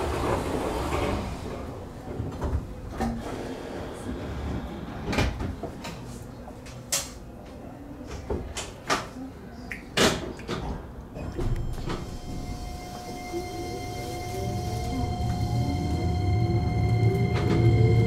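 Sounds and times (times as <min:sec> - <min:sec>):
train rumbling: 0:00.0 - 0:05.8, 0:11.3 - 0:18.0.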